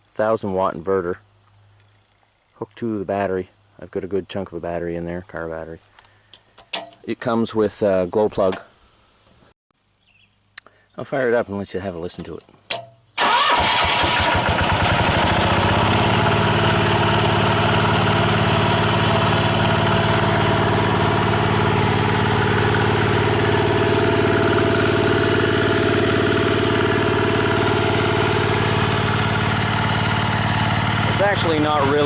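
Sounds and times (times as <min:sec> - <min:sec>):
diesel engine starting and running: 0:13.2 - 0:32.0.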